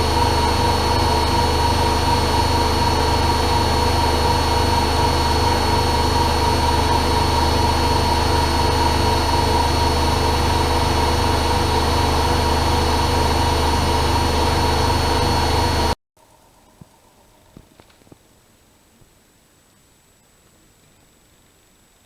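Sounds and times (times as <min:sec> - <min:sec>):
washing machine spinning: 0:00.0 - 0:16.0.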